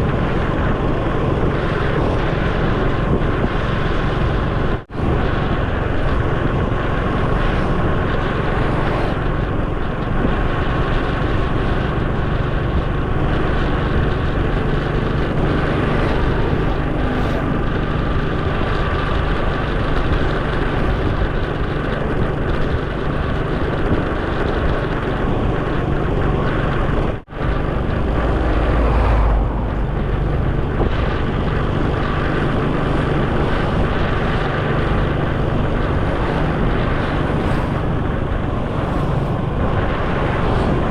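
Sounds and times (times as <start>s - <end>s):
deep rumble: 0.0s - 40.9s
motorcycle engine: 0.0s - 40.9s
wind noise: 0.0s - 40.9s.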